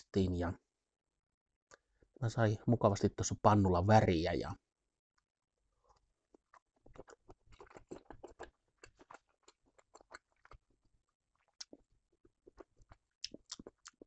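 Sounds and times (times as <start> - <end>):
faint chewing with wet mouth clicks: 5.9 - 14.0.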